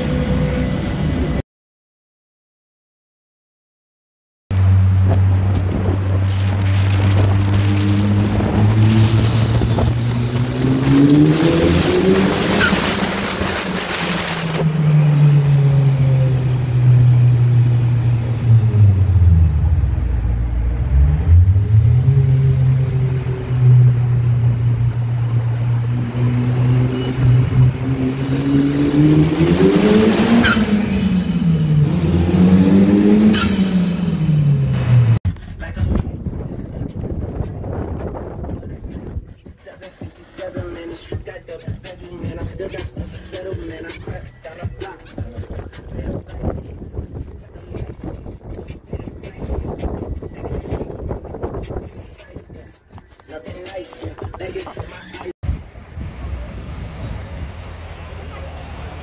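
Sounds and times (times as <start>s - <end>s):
car engine accelerating in tunnel: 4.5s - 35.2s.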